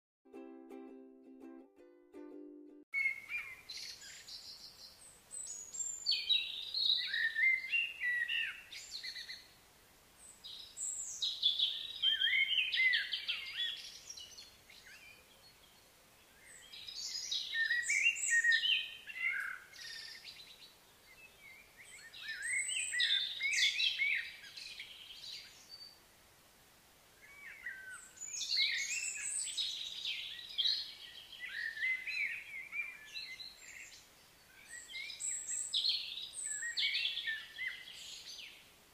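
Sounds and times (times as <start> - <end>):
songbird chirping and warbling: 3.0 - 9.6, 10.2 - 26.0, 27.1 - 38.8.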